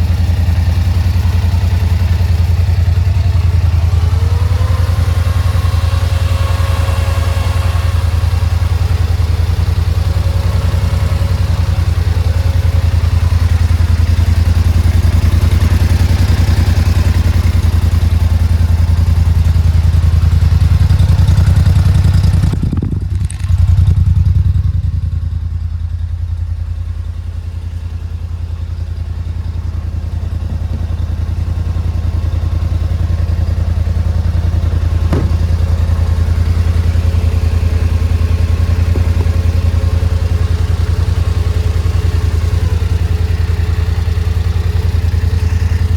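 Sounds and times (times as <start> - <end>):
atv engine running: 0.0 - 45.9
engine knock: 0.0 - 45.9.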